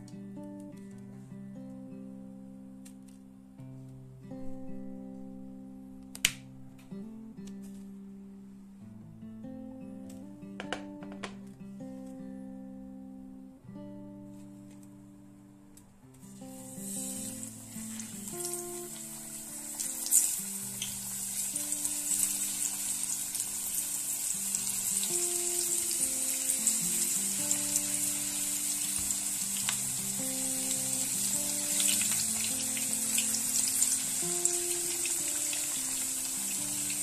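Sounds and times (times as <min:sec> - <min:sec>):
soft background music: 0:04.4 - 0:37.0
courgette sizzling in oil: 0:16.3 - 0:37.0.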